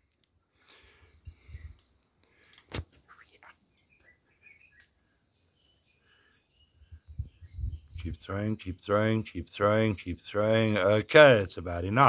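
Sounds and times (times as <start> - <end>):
faint bird chirps: 3.0 - 10.2.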